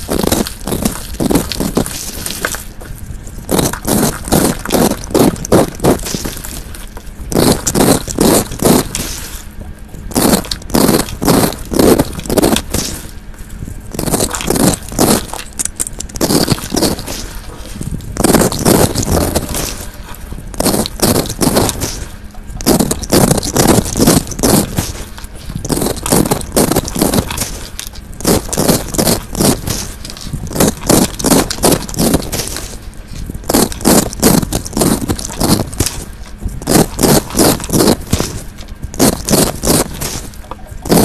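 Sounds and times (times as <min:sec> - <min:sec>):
fidget toys scratched by hand: 0:07.3 - 0:09.4, 0:10.1 - 0:13.1, 0:13.9 - 0:32.8, 0:33.4 - 0:41.0.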